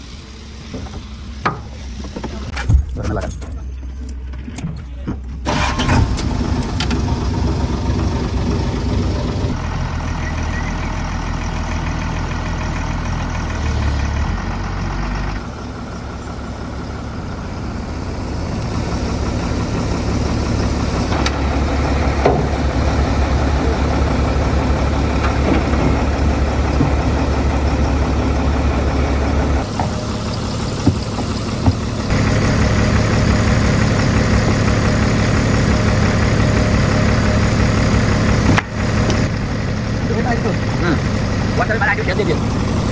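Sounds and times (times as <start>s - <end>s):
diesel engine running: 0.0s - 42.9s
short knocks: 25.2s - 27.5s, 30.8s - 32.1s.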